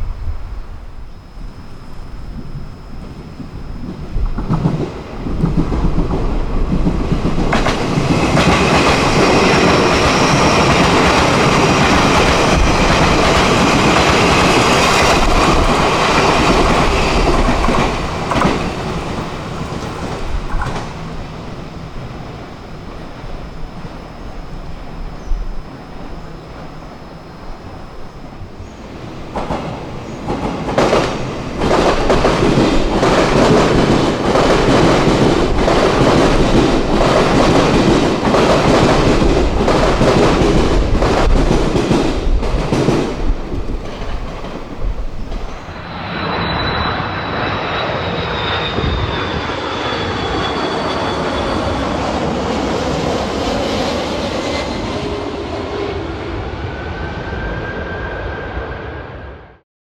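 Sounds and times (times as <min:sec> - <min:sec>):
train rush with high whine: 0:00.0 - 0:59.6
train wheels clattering: 0:02.4 - 0:46.3.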